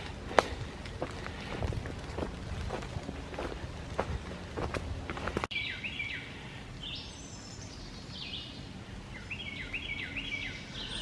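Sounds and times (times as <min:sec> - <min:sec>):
footsteps on wet trail: 0:00.0 - 0:05.6
songbirds singing: 0:03.2 - 0:11.0.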